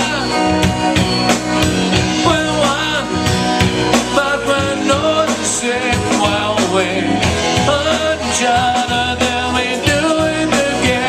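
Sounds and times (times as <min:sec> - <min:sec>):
bass guitar: 0:00.0 - 0:11.0
drum kit beating: 0:00.0 - 0:11.0
electric guitar: 0:00.0 - 0:11.0.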